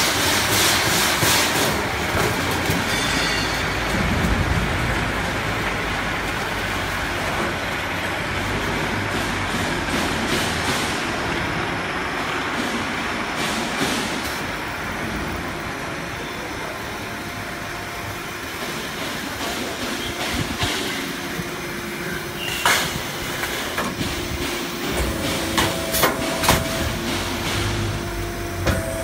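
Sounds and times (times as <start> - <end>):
machinery noise: 0.0 - 29.0
low hum: 3.9 - 6.5.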